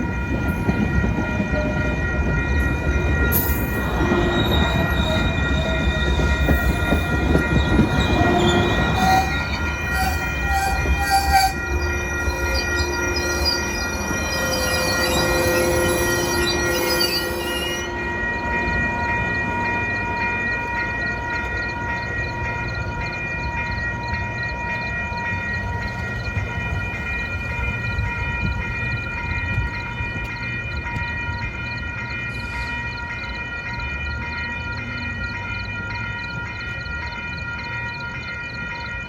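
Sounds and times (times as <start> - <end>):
train rumbling past: 0.0 - 36.8
train horn blast: 7.8 - 13.8.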